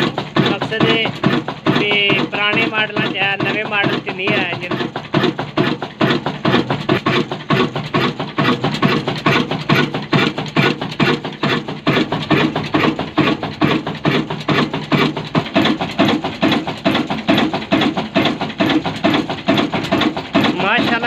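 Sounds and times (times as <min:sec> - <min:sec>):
diesel engine running slowly: 0:00.0 - 0:21.0.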